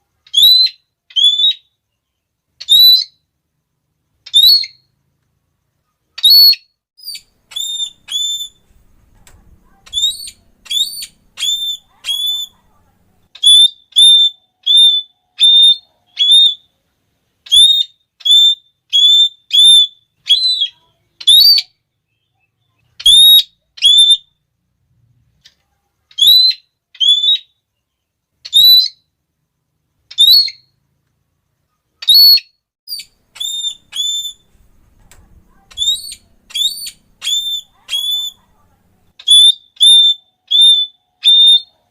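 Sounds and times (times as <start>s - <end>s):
parrot calling shrilly: 0.3s - 1.7s, 2.6s - 3.2s, 4.3s - 4.9s, 6.2s - 8.7s, 9.6s - 12.7s, 13.3s - 16.7s, 17.4s - 21.8s, 23.0s - 24.3s, 26.1s - 27.6s, 28.4s - 29.1s, 30.1s - 30.7s, 32.0s - 34.6s, 35.5s - 38.6s, 39.2s - 41.9s.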